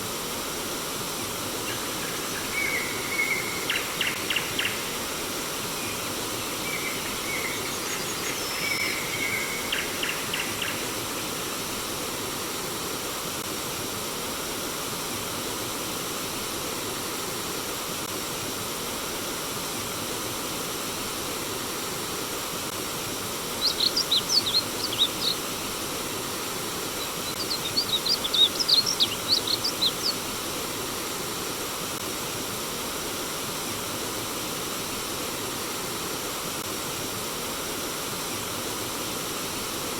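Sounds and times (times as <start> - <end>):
stream water flowing: 20.0 - 36.5
birds whistling and chirping: 23.6 - 25.5, 27.0 - 30.2.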